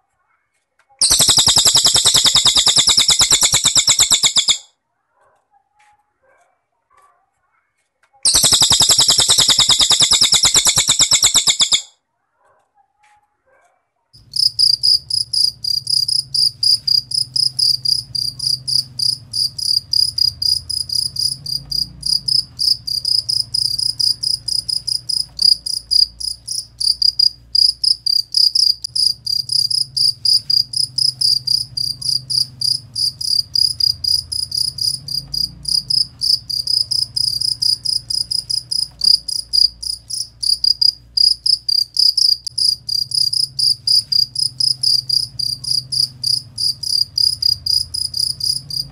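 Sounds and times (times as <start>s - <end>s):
cricket chirping: 1.0s - 4.6s, 8.3s - 11.9s, 14.2s - 48.9s
faint low hum: 14.2s - 48.9s.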